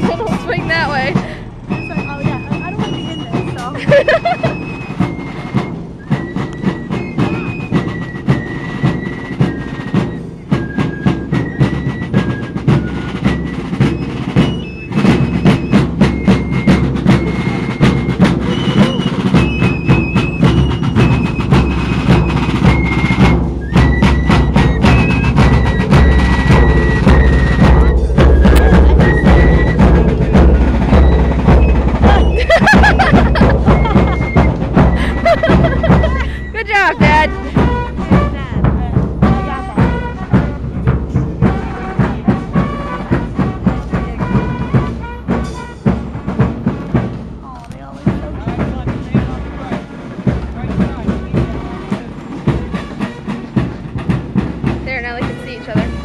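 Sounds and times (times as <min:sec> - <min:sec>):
high piping melody: 0:00.0 - 0:46.3
bass drum beats: 0:00.0 - 0:56.0
snare drum strikes: 0:10.8 - 0:47.4.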